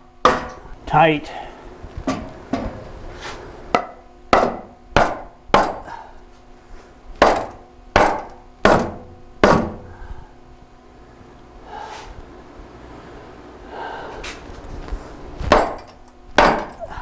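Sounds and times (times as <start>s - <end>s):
hammer striking steel pipe: 3.7s - 5.9s, 7.2s - 9.9s.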